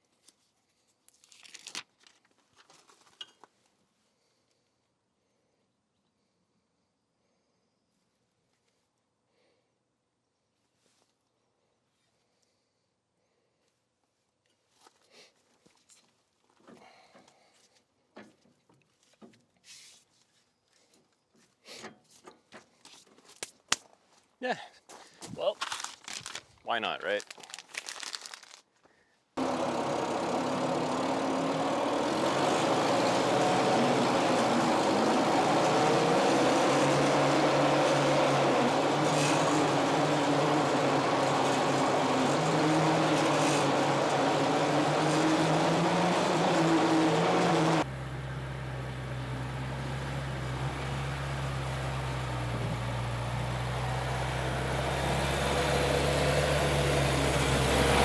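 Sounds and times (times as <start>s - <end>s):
skid-steer loader engine running: 29.4s - 58.0s.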